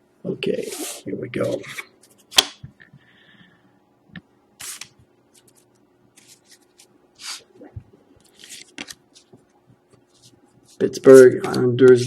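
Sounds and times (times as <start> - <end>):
cards sliding against cards: 0.6 - 1.0, 4.6 - 7.5, 8.2 - 11.6.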